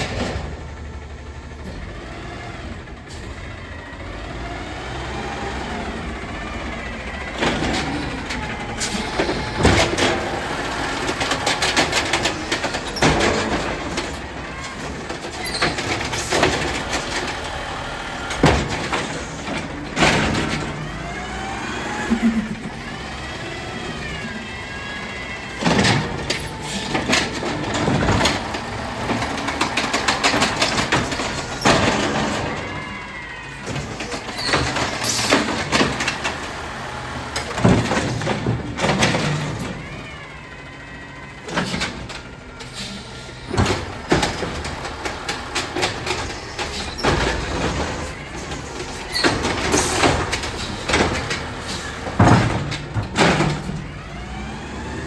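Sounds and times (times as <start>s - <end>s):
garbage truck engine revving: 0.0s - 55.0s
metal bangs and clatter: 7.1s - 21.4s, 25.0s - 33.0s, 41.4s - 54.2s.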